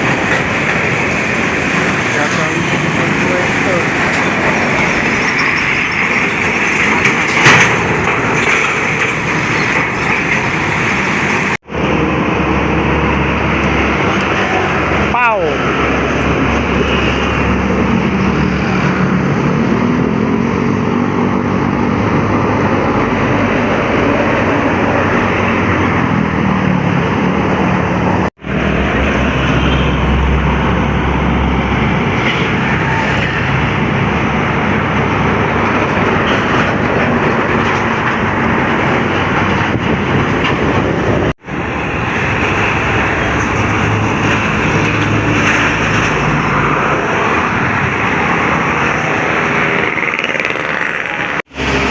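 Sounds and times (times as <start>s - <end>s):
trucks driving past: 0.0s - 51.9s.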